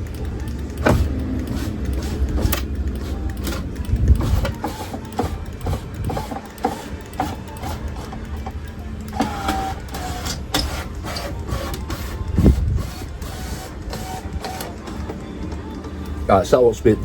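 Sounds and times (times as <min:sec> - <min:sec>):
door window clicking and knocking: 0:00.8 - 0:01.3.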